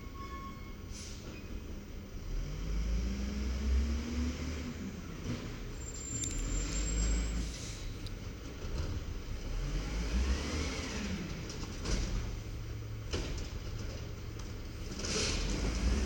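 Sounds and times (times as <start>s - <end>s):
thin high squeal: 0.0s - 1.2s, 5.8s - 7.6s
diesel truck engine running: 2.8s - 16.0s.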